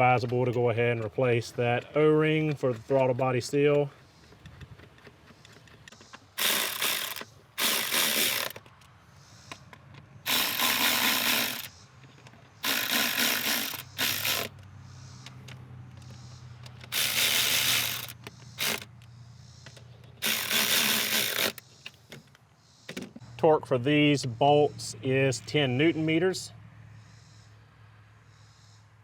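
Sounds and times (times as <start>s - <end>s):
ratchet wrench clicking: 6.4s - 8.6s, 10.3s - 11.7s, 12.6s - 14.6s, 16.7s - 19.0s, 19.6s - 21.6s.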